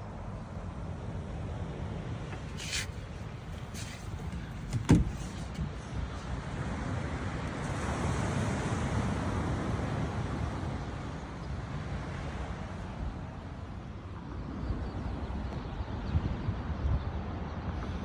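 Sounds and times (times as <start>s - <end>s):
wind on microphone: 14.6s - 17.7s.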